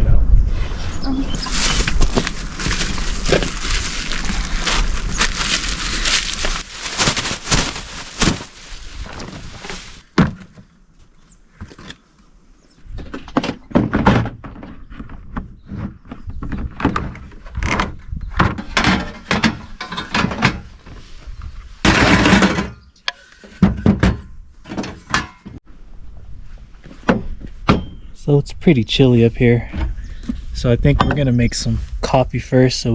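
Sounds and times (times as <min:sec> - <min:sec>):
cooking gear thunks and rattles: 0:01.6 - 0:10.5.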